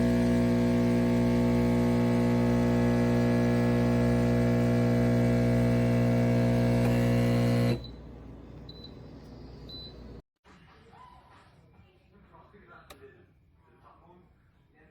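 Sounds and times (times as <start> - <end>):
espresso machine pump buzzing: 0.0 - 8.1.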